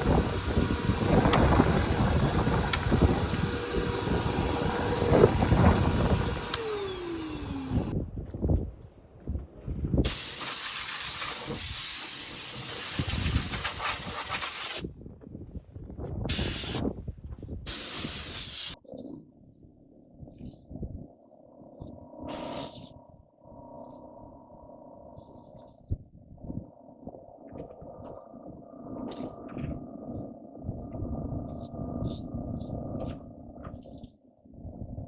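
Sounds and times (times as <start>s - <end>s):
motor whine winding down: 0.0s - 8.0s
hissing air blasts: 10.0s - 14.8s, 16.3s - 16.8s, 17.7s - 19.2s, 20.2s - 35.0s.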